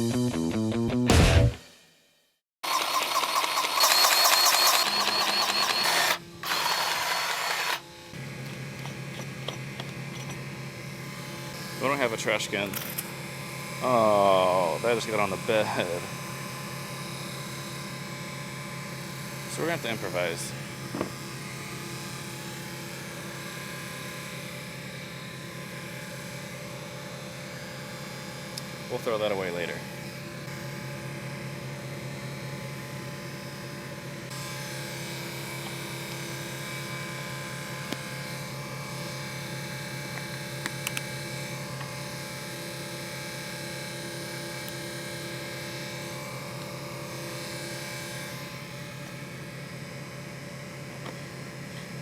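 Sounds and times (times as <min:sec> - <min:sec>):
small motor pulsing: 0:02.6 - 0:26.3
motor humming steadily: 0:02.6 - 0:52.0.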